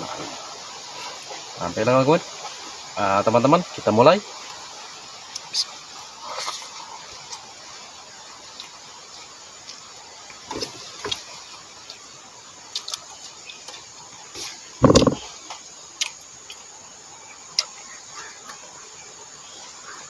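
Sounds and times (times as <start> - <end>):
mouth clicks and smacks chewing: 12.7 - 13.8
loud crunch: 14.8 - 15.3.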